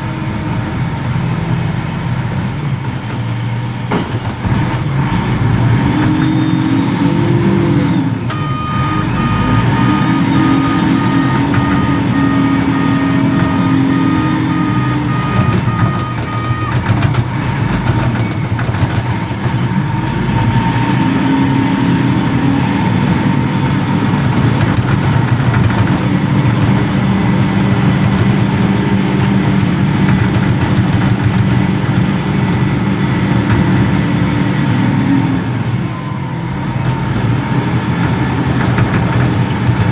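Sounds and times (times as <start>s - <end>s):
diesel engine revving under load: 0.0s - 39.9s
beeping alarm: 8.3s - 18.9s.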